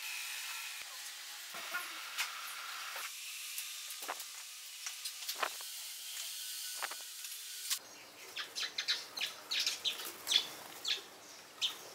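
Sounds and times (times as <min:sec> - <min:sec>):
small birds chirping: 0:07.8 - 0:11.9.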